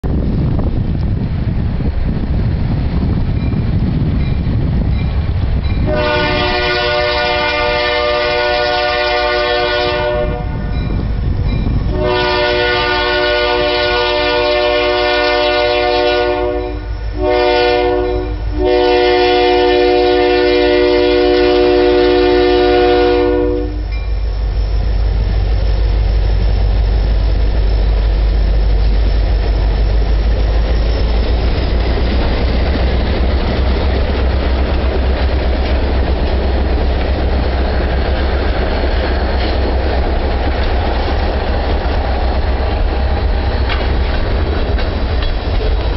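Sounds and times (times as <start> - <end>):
diesel locomotive rumble: 0.0 - 45.9
locomotive chime horn blasts: 5.8 - 11.1, 11.8 - 24.1.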